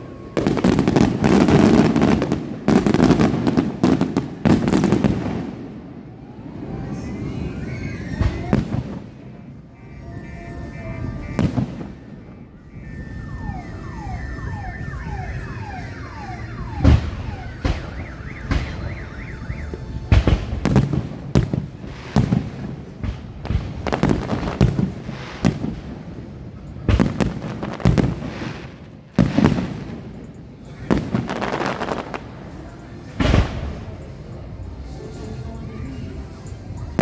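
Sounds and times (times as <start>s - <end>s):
fireworks bursting with bangs: 0.0s - 34.8s
car alarm: 9.7s - 20.0s.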